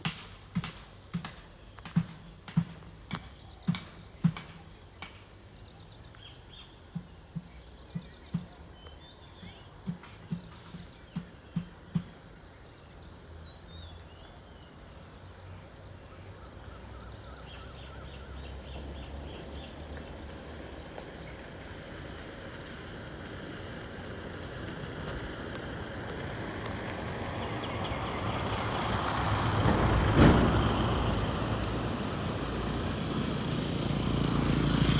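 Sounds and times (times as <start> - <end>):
high insect drone: 0.0 - 34.9
vehicle passing: 17.8 - 34.9.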